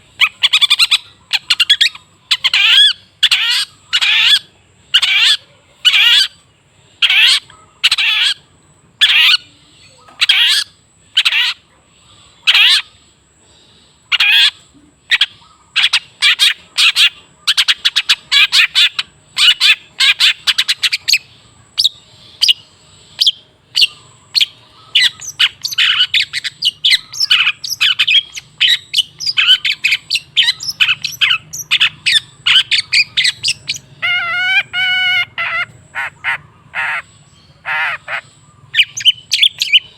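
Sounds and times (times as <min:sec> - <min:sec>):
shrike giving harsh scratchy calls: 0:23.2 - 0:39.9.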